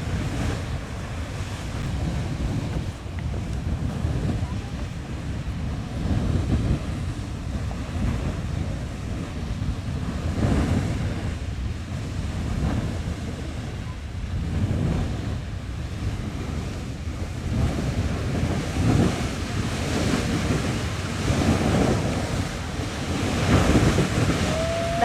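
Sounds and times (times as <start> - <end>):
wind buffeting microphone: 0.0 - 25.0
geyser water rushing hiss: 17.1 - 25.0.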